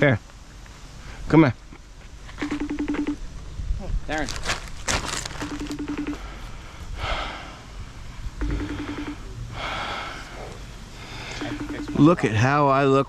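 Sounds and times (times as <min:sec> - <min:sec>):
video call ring tone: 0:02.4 - 0:03.2, 0:05.4 - 0:06.3, 0:08.4 - 0:09.4, 0:11.3 - 0:12.6
breathy puffs of noise: 0:06.0 - 0:11.6.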